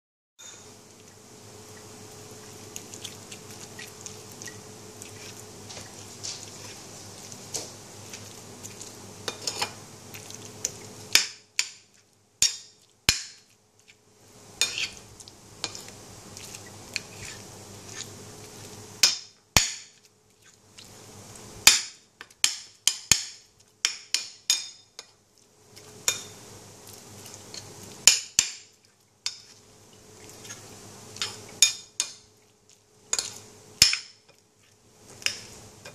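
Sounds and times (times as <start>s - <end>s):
faint steady hum: 0.4s - 35.9s
utensil clinking against a dish: 9.2s - 9.8s, 21.7s - 25.2s, 26.0s - 26.4s, 27.5s - 29.6s, 31.2s - 32.3s, 33.1s - 34.4s.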